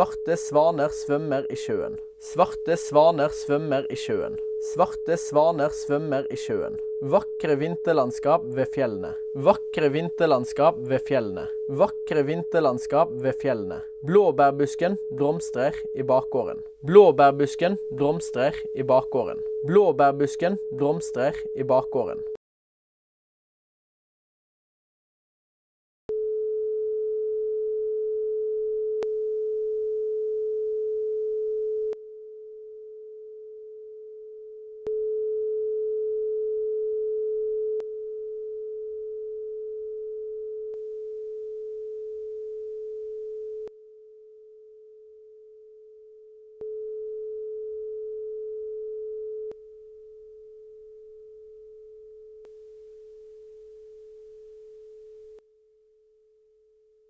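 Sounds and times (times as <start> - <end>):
steady pure test tone: 0.0 - 22.3.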